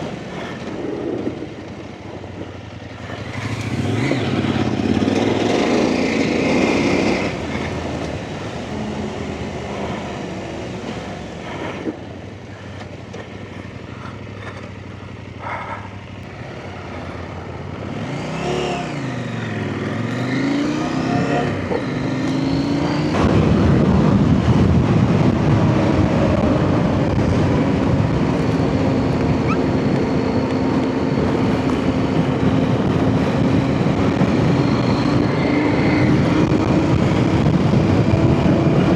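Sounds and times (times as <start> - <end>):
off-road motorcycle engine: 0.0 - 38.9
rushing noise: 15.2 - 38.9.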